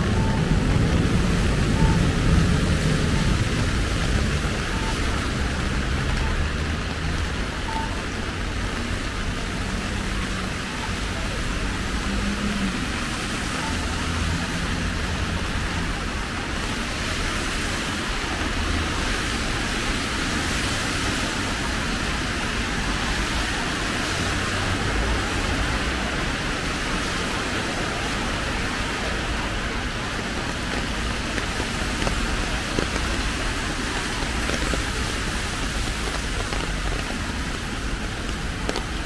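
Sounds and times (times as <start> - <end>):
road traffic rumble: 0.0 - 39.0
steady rain: 0.0 - 39.0.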